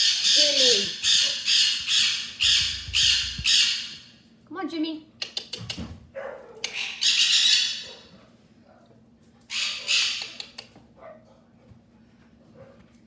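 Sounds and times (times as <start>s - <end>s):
parrot squawking: 0.0s - 4.1s, 6.6s - 8.0s, 9.5s - 10.6s.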